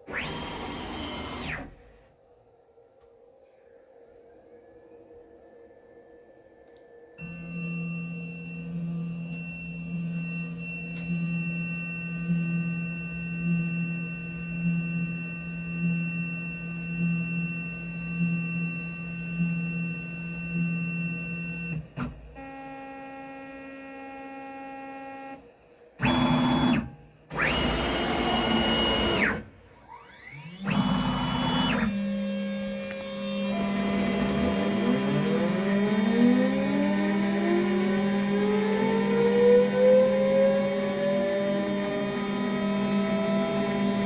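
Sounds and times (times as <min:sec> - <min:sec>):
motor running loudly: 0:00.0 - 0:02.0, 0:26.0 - 0:44.0
machine motors humming: 0:00.0 - 0:02.1, 0:26.0 - 0:44.0.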